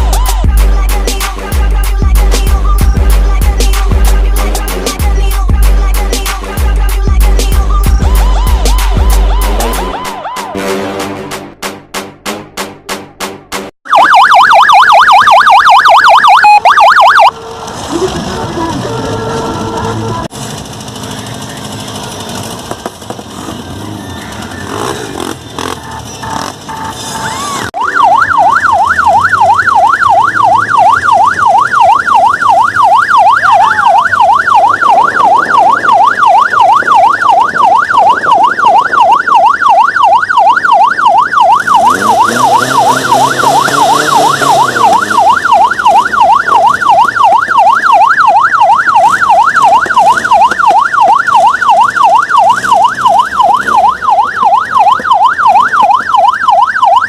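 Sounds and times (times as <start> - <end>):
electronic yelp siren: 7.5 - 10.6, 13.8 - 17.4, 23.6 - 57.0.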